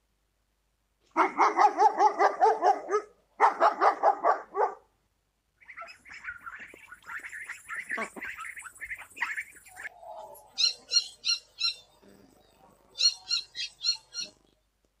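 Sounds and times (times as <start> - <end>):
dog barking rapidly: 1.2 - 4.9
higher choppy calls: 5.6 - 11.9.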